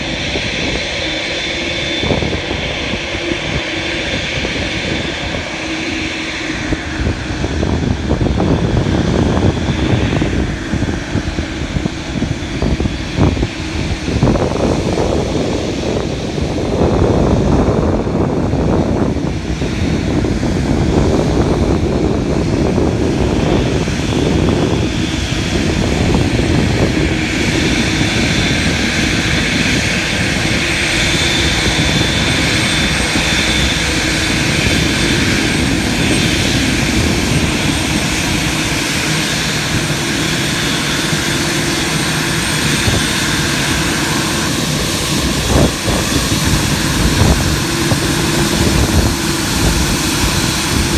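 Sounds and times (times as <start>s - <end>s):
high engine whine: 0.0s - 50.9s
jet engines rushing: 0.0s - 50.9s.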